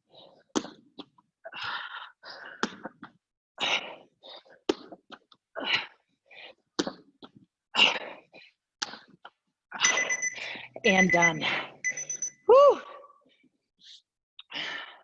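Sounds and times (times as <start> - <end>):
person breathing hard: 1.4 - 3.0, 13.8 - 15.0.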